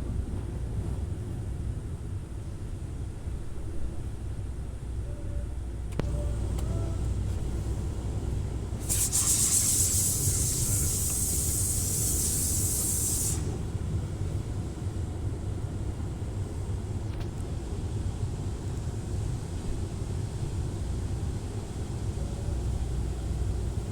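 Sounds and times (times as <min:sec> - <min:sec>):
car wash rumbling: 0:06.0 - 0:15.6
spray jets hissing: 0:08.8 - 0:13.6.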